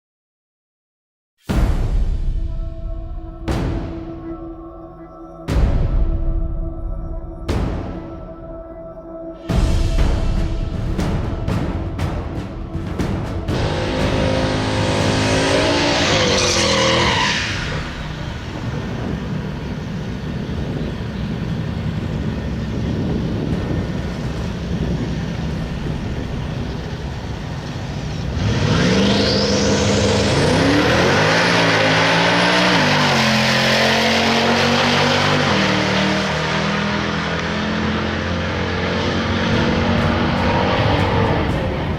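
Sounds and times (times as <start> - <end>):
drag car engine revving: 13.5 - 20.4, 24.8 - 41.9.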